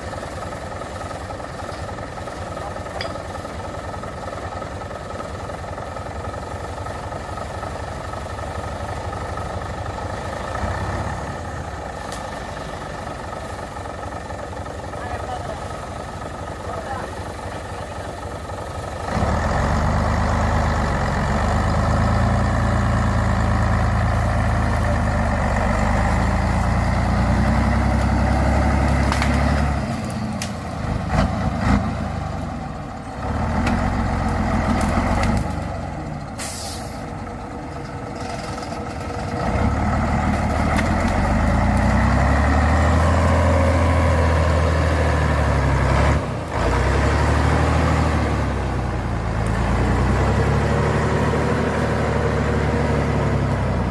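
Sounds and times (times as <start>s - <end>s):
truck engine revving: 0.0s - 53.9s
air brake hiss: 36.4s - 37.1s.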